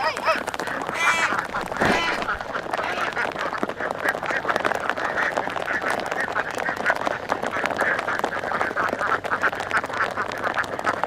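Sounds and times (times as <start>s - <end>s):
flock of ducks quacking: 0.0s - 11.0s.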